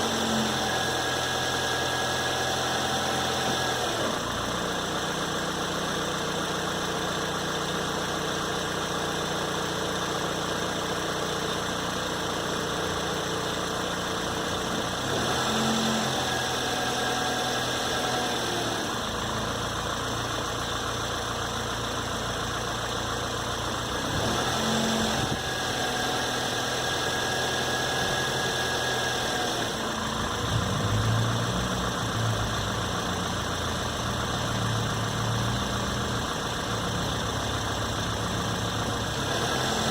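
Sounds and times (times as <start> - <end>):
car engine idling: 0.9 - 15.2, 18.6 - 39.6.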